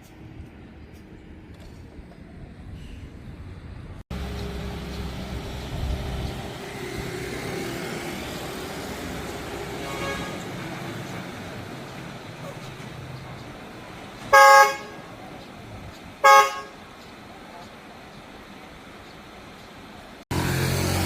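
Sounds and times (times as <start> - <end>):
road noise: 0.0 - 21.0
heavy truck engine running: 0.1 - 21.0.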